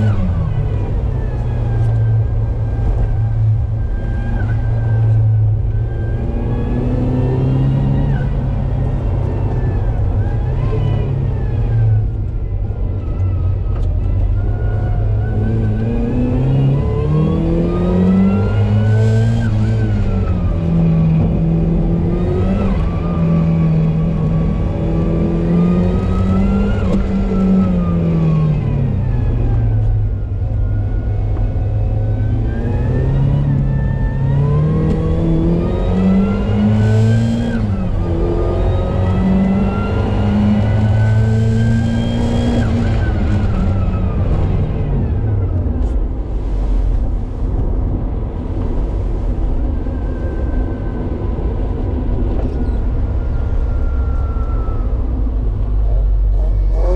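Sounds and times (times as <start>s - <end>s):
car engine revving: 31.0s - 46.9s, 51.3s - 56.9s.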